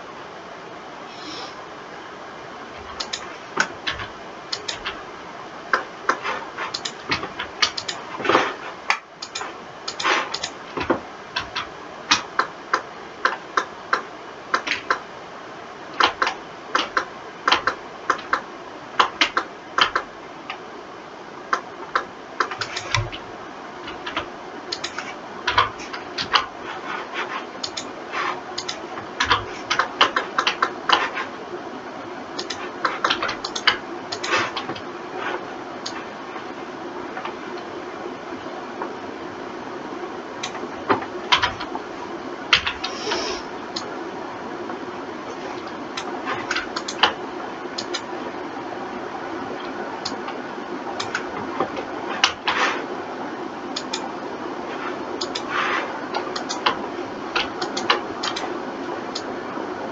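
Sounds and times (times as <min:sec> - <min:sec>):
faint hiss: 0:00.0 - 0:03.6, 0:41.8 - 0:59.9
keyboard and mouse clicking: 0:03.0 - 0:05.0, 0:05.7 - 0:15.0, 0:16.0 - 0:18.4, 0:19.0 - 0:20.6, 0:21.5 - 0:23.2, 0:23.8 - 0:26.5, 0:27.6 - 0:28.0, 0:28.6 - 0:31.3, 0:32.4 - 0:34.8, 0:40.4 - 0:41.7, 0:42.5 - 0:43.9, 0:45.6 - 0:47.2, 0:47.8 - 0:48.1, 0:51.0 - 0:52.6, 0:53.7 - 0:54.1, 0:55.2 - 0:55.5, 0:56.2 - 0:58.5.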